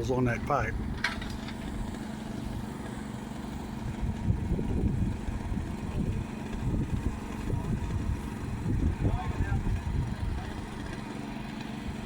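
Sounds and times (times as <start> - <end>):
chainsaw cutting through metal pipe: 1.0 - 12.0.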